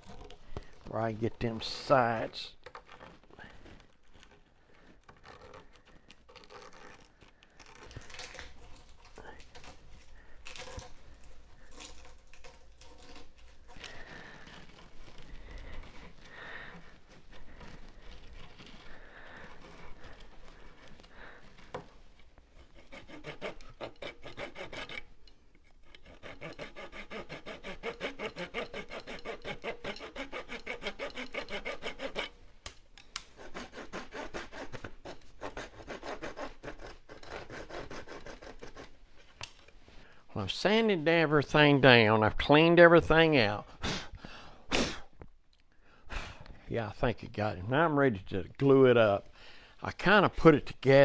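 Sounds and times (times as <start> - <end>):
sandpaper rubbing wood: 22.6 - 25.0, 26.0 - 32.3, 33.4 - 39.0.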